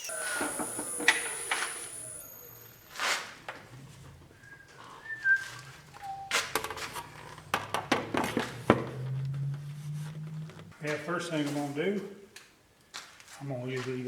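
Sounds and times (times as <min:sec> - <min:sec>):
short whistled notes: 0:00.0 - 0:03.3, 0:04.4 - 0:06.6.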